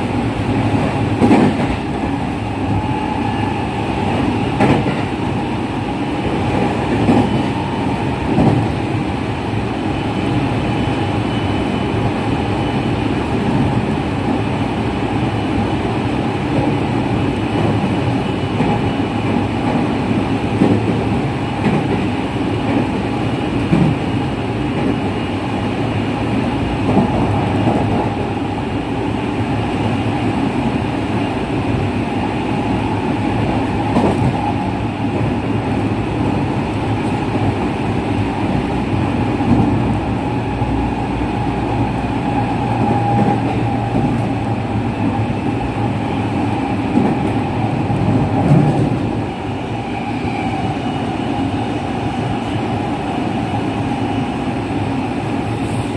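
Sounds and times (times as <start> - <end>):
wheels rumbling on rails: 0.0 - 55.9.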